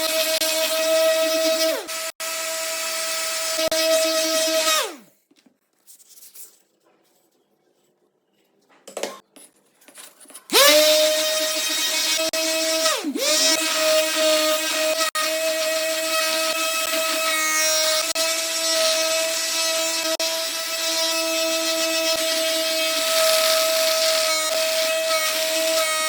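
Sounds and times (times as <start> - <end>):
power tool motor whining: 10.5 - 26.0.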